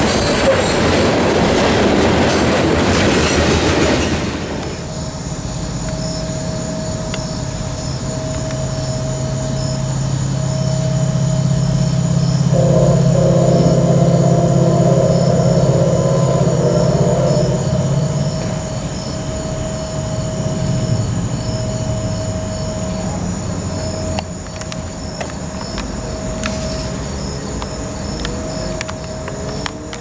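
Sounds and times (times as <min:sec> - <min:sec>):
freight train rumbling past: 0:00.0 - 0:05.8, 0:09.9 - 0:29.1
thin steady squeal: 0:04.9 - 0:30.0
low hum: 0:10.3 - 0:23.0.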